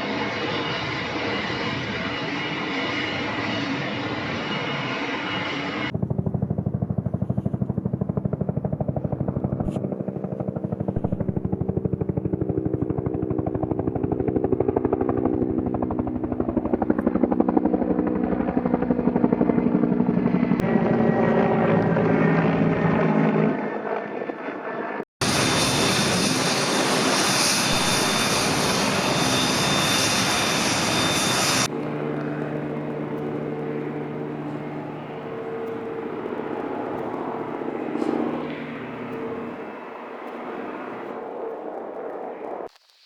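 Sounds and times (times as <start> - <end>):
helicopter engine hum: 0.0 - 42.7
helicopter rotor chopping: 0.0 - 42.7.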